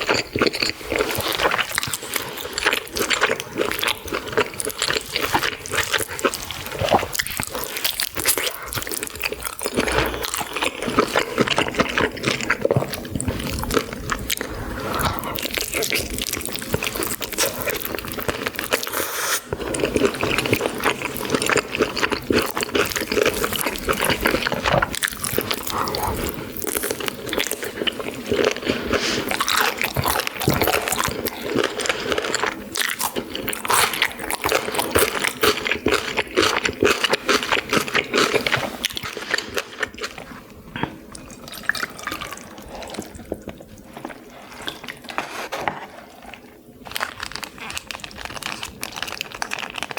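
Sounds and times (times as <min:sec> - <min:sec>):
chewing: 0:00.0 - 0:49.9
slurping noodles and broth: 0:18.7 - 0:21.6, 0:41.5 - 0:46.6.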